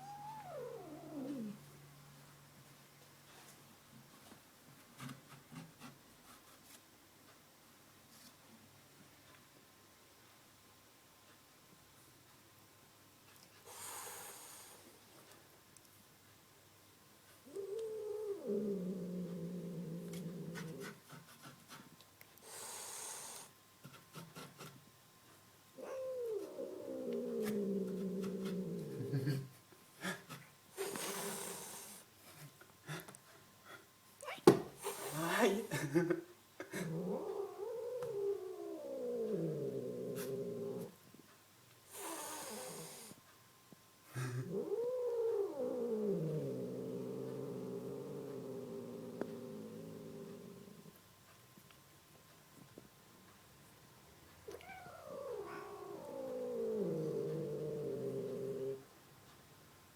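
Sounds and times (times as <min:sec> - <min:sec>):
angry cat yowling: 0:00.0 - 0:01.6, 0:25.8 - 0:29.0, 0:54.5 - 0:58.8
cat growling: 0:00.0 - 0:01.9, 0:17.4 - 0:21.5, 0:25.8 - 0:32.0, 0:36.6 - 0:41.0, 0:41.9 - 0:43.2, 0:44.1 - 0:51.0, 0:54.4 - 0:58.9
cat hissing: 0:17.5 - 0:24.7, 0:30.0 - 0:32.1, 0:34.2 - 0:35.7, 0:41.9 - 0:43.2, 0:44.2 - 0:50.8, 0:54.5 - 0:58.8.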